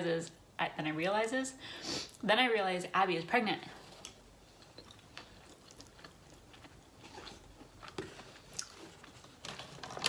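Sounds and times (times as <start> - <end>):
person chewing food: 3.8 - 10.0.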